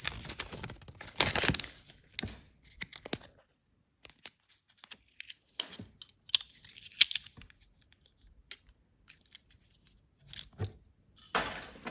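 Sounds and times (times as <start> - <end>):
foil wrapper crinkling and tearing: 0.0 - 2.2.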